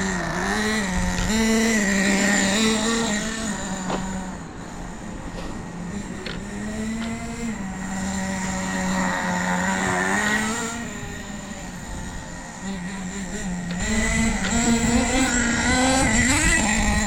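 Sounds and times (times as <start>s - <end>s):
rc car nitro engine running: 0.0s - 17.0s.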